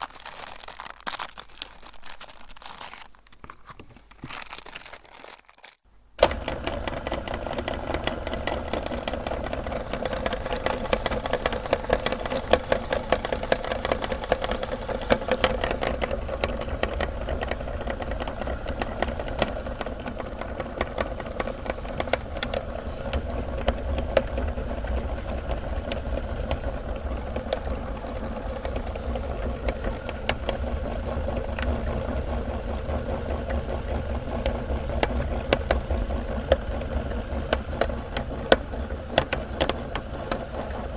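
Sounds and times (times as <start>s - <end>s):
sharp crunching crackles: 0.0s - 5.8s
electric meat grinder running: 6.2s - 40.9s.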